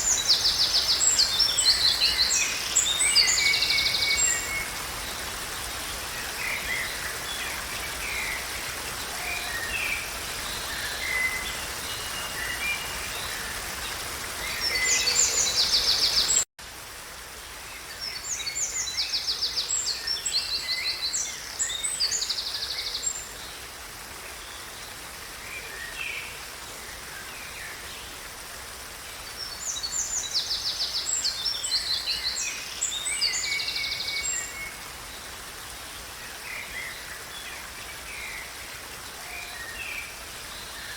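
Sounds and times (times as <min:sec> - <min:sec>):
songbirds singing: 0:00.0 - 0:16.4, 0:29.1 - 0:40.9.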